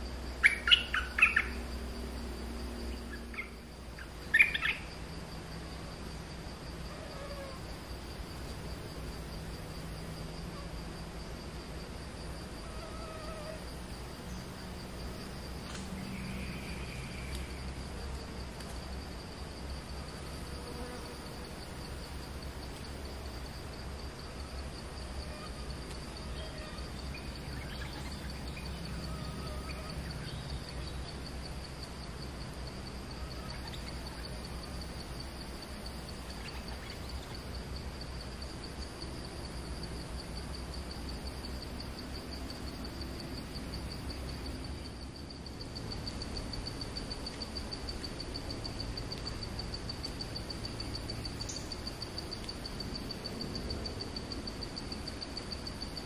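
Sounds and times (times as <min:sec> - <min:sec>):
high insect drone: 0:00.0 - 0:56.0
songbird chirping: 0:00.3 - 0:01.8, 0:02.7 - 0:05.0, 0:12.8 - 0:17.8, 0:25.4 - 0:31.5.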